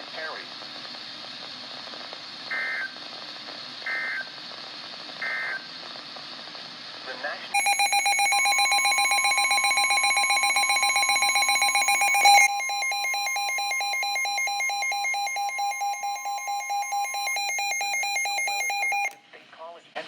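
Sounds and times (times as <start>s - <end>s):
buzzy digital alert tones: 7.6s - 19.1s
steady warning alarm tone: 7.6s - 19.2s.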